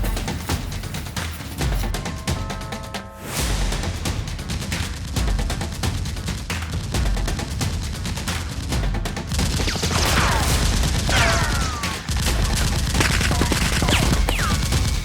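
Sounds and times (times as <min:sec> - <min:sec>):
low steady throb: 0:00.0 - 0:15.0
rapid gunfire: 0:03.4 - 0:15.0
whistles dropping in pitch: 0:13.4 - 0:15.0.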